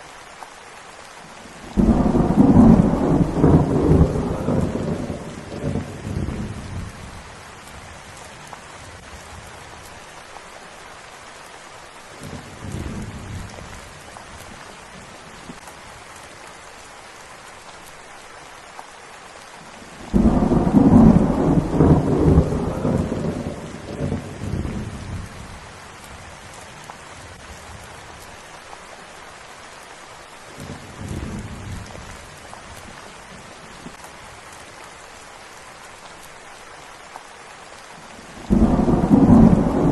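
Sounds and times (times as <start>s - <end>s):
steady rain falling: 0.0s - 39.9s
thunder rolling: 1.8s - 6.9s, 20.1s - 25.3s, 38.5s - 39.9s.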